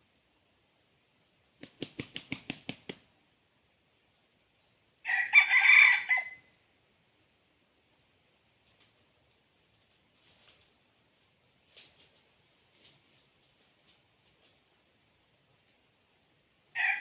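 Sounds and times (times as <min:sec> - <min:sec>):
rooster flapping wings: 0:01.5 - 0:03.0, 0:10.2 - 0:10.8, 0:11.6 - 0:14.6
rooster crowing: 0:05.0 - 0:06.5, 0:16.7 - 0:17.0.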